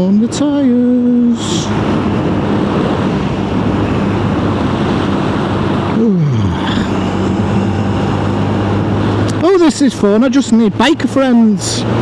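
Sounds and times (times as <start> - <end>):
wind and road noise: 0.0 - 12.0
motorcycle engine running: 6.7 - 12.0.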